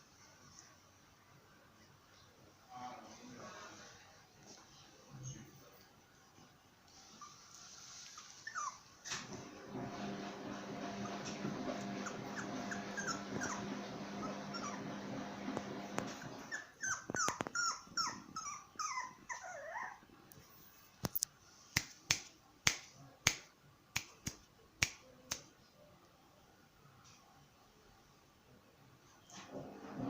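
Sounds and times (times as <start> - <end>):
puppy whimpering: 7.0 - 9.3, 11.0 - 20.0.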